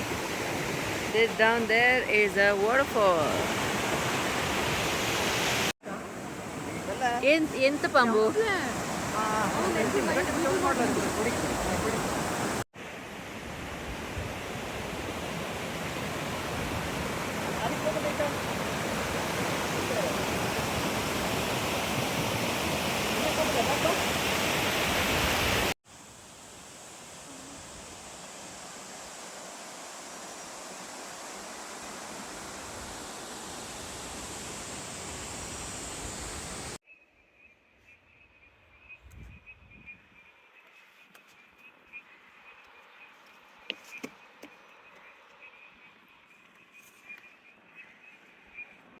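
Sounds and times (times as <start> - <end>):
waterfall rushing: 14.6 - 25.8.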